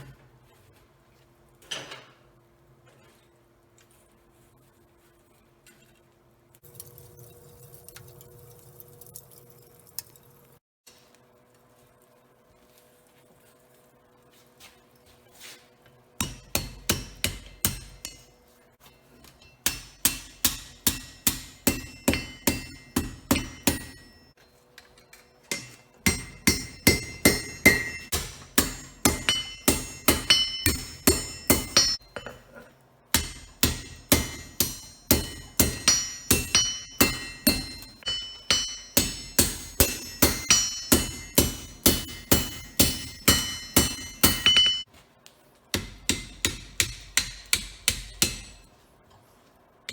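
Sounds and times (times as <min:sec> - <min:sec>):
hammer striking steel on anvil: 0:16.2 - 0:18.4, 0:19.2 - 0:32.4, 0:33.1 - 0:44.9, 0:45.7 - 0:48.7
anvil ringing: 0:19.4 - 0:24.4, 0:25.0 - 0:32.4, 0:33.2 - 0:44.9.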